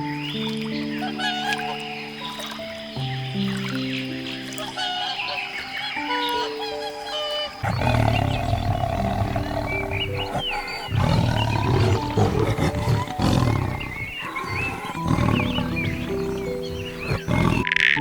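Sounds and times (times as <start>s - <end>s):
lion roaring: 7.6s - 17.7s.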